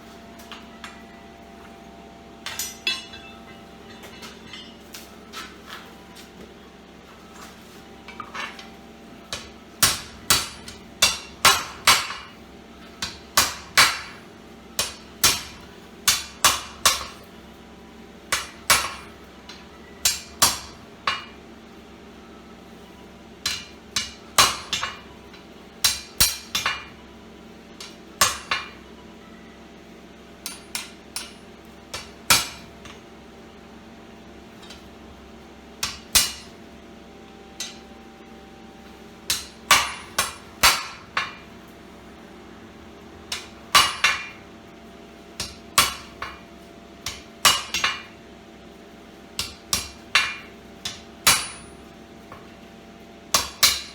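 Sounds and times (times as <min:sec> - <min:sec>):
faint steady hum: 0:00.0 - 0:53.9
hammer striking steel on anvil: 0:02.4 - 0:05.6, 0:08.0 - 0:14.2, 0:14.8 - 0:17.3, 0:18.3 - 0:21.4, 0:23.4 - 0:27.0, 0:27.8 - 0:28.9, 0:30.4 - 0:33.0, 0:35.8 - 0:36.6, 0:37.5 - 0:38.0, 0:39.2 - 0:41.6, 0:43.3 - 0:44.4, 0:45.4 - 0:46.4, 0:47.0 - 0:48.2, 0:49.4 - 0:52.5, 0:53.3 - 0:53.9.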